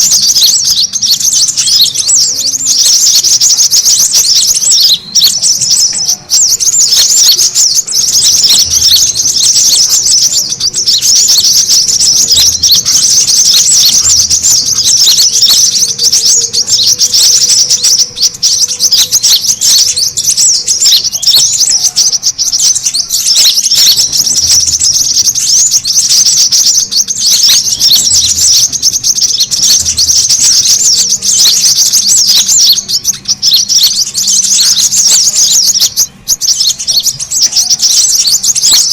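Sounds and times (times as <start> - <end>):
birds chirping and trilling: 0.0 - 38.9.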